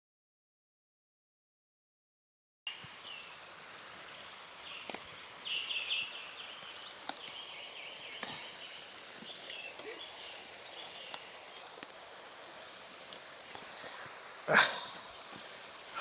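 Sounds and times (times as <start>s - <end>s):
birds chirping: 2.7s - 16.0s
steady high hiss: 2.7s - 16.0s
sharp clicks or snaps: 4.8s - 5.1s, 6.6s - 7.2s, 8.0s - 8.4s.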